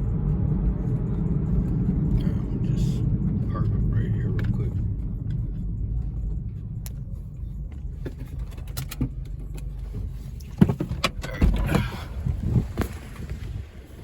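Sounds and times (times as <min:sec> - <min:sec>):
car engine low rumble: 0:00.0 - 0:14.0
clicks and knocks inside cabin: 0:07.7 - 0:13.3.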